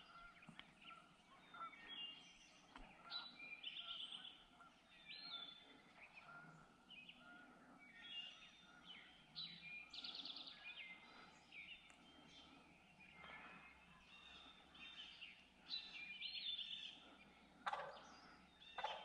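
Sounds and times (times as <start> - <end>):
songbirds chirping: 0.0 - 19.0
bird trills: 17.6 - 19.0.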